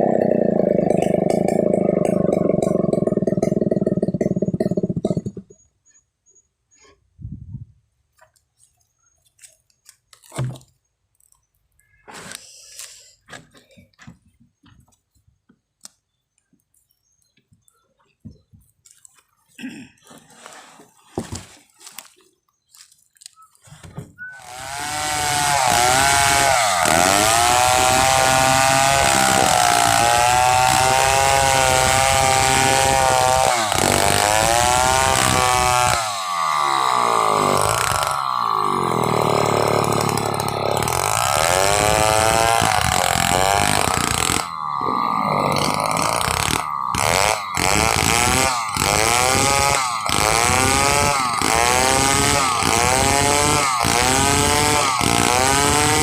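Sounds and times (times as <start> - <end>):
chainsaw cutting wood: 0.0 - 5.6, 24.4 - 56.0.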